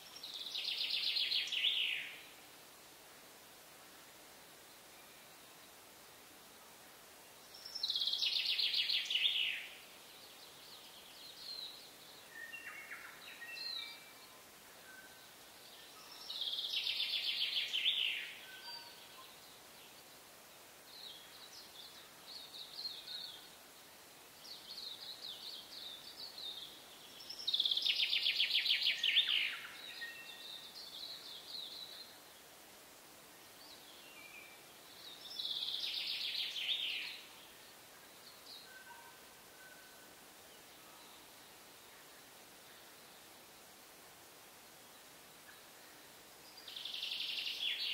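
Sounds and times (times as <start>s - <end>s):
songbird trilling song: 0.0s - 2.3s, 7.5s - 20.0s, 24.4s - 32.2s, 33.6s - 41.2s, 45.4s - 47.9s
soft bird chirps: 7.5s - 32.5s, 33.4s - 43.3s, 44.7s - 47.9s.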